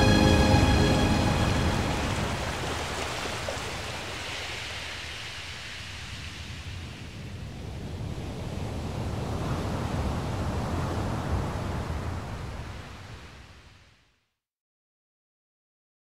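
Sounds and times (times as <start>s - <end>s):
rushing water: 0.0s - 7.3s.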